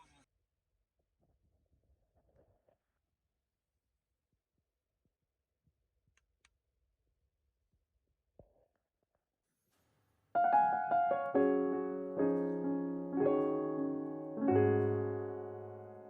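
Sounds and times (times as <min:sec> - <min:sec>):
gentle piano chords: 0:10.4 - 0:16.0.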